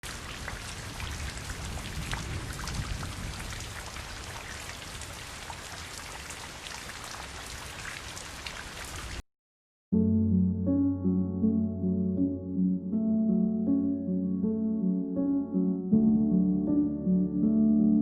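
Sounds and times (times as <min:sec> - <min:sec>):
fountain water splashing: 0:00.0 - 0:09.1.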